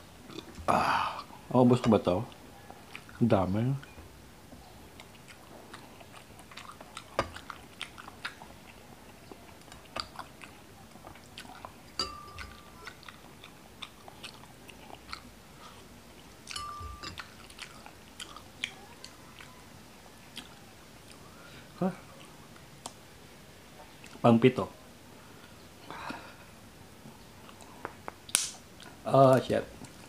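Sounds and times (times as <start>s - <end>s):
wet mouth chewing: 2.3s - 3.2s, 4.9s - 19.6s, 20.3s - 21.2s.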